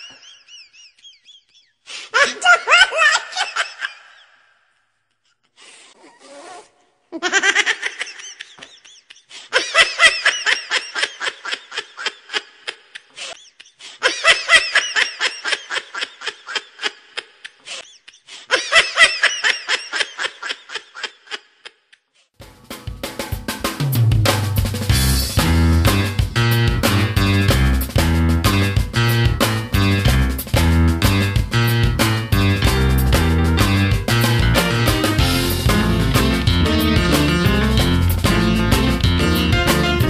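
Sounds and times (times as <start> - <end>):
person laughing hard: 0.0 - 4.5, 7.2 - 21.8.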